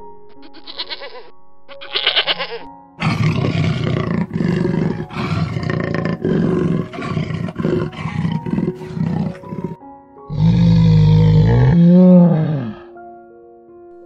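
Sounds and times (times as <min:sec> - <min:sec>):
lamb bleating: 0:00.3 - 0:04.0, 0:04.6 - 0:09.7
big cat growling and roaring: 0:03.0 - 0:12.9.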